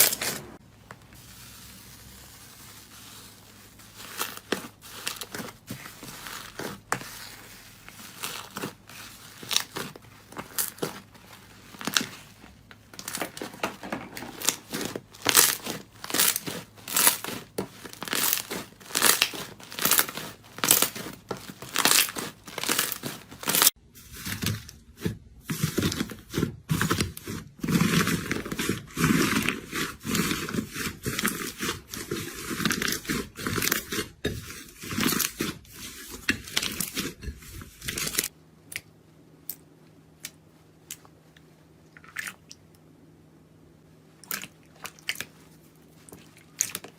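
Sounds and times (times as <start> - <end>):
faint steady hum: 0.0 - 46.9
crunchy material being crushed: 1.3 - 38.3.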